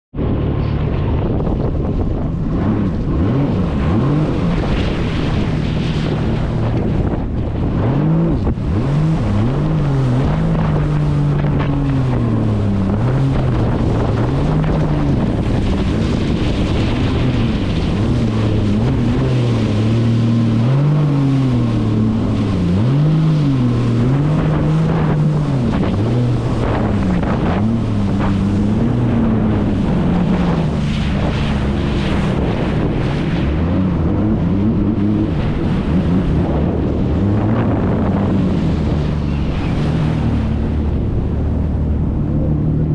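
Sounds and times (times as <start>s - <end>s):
wind buffeting microphone: 0.1s - 42.9s
jet ski engine revving: 0.2s - 42.9s
water slapping against hull: 0.2s - 42.9s.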